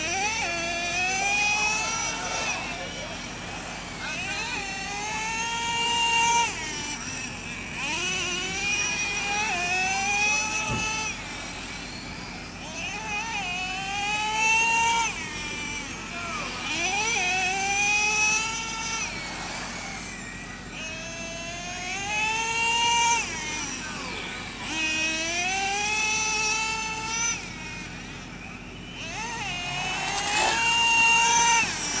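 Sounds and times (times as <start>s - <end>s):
rc car motors whining: 0.0s - 32.0s.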